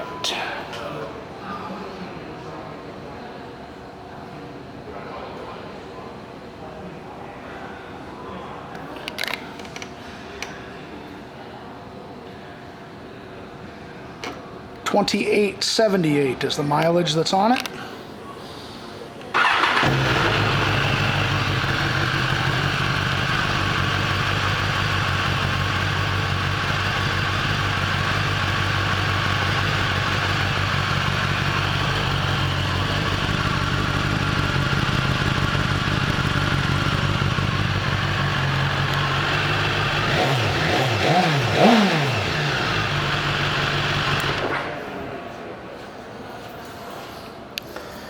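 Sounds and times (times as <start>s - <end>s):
engine revving: 19.4s - 44.7s
motorcycle engine idling: 19.4s - 44.9s.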